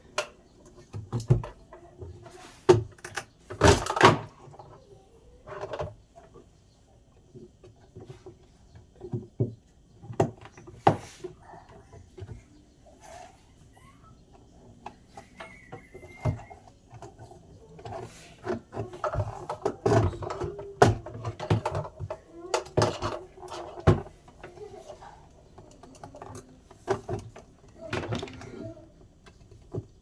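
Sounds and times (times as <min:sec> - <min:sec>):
hard objects knocking and clattering: 0:14.4 - 0:30.0.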